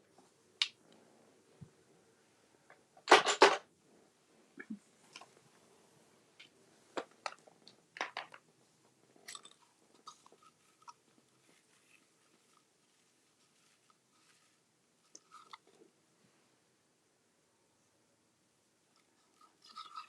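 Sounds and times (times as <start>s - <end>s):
crisp paper strokes: 10.1s - 15.5s.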